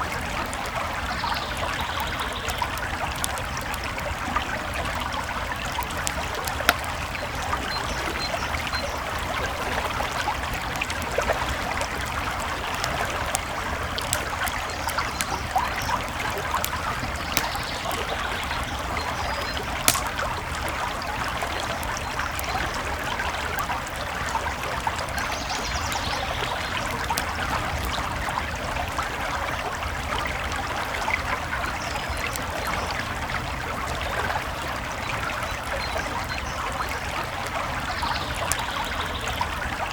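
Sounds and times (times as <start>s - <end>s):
creek flowing: 0.0s - 39.9s
campfire crackling and popping: 0.2s - 29.1s.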